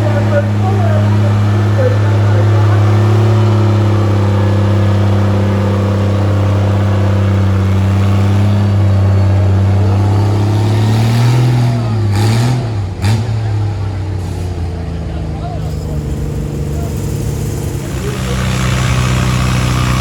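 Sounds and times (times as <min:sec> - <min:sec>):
tractor engine under load: 0:00.0 - 0:20.0.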